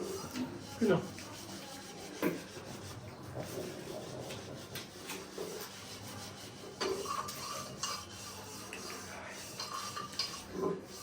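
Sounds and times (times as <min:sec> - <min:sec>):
dishes and cutlery clinking: 0:06.5 - 0:11.0.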